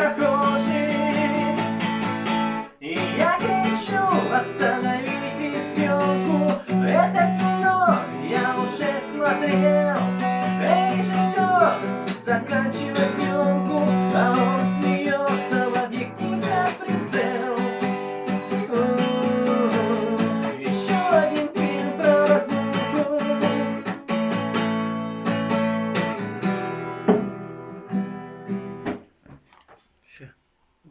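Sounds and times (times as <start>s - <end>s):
person singing: 0.0s - 24.1s
acoustic guitar strumming: 0.0s - 29.1s.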